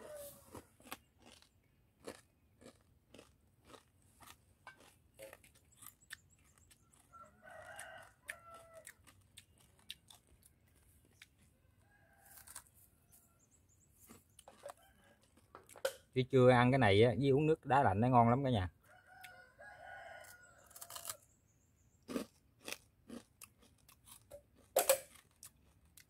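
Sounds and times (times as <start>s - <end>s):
rooster crowing: 0.0s - 0.5s, 6.9s - 9.1s, 11.6s - 13.4s, 14.5s - 15.4s, 18.8s - 21.2s
person chewing crispy rice: 0.0s - 15.9s, 19.1s - 21.3s, 22.0s - 26.0s.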